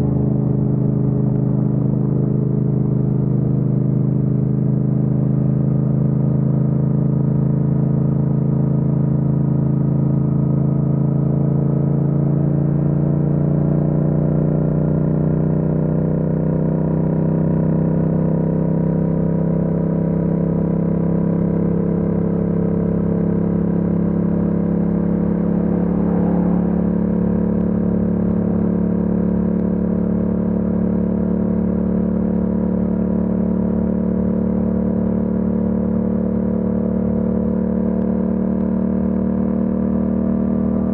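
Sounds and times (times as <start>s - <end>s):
motorcycle engine cruising: 20.6s - 40.9s.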